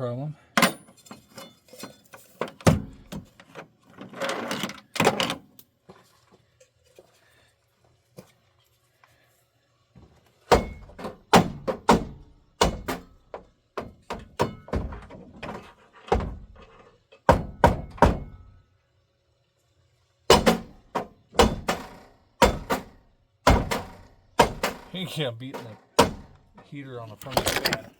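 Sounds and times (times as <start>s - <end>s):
loud thunks on blower motor: 20.3s - 25.0s.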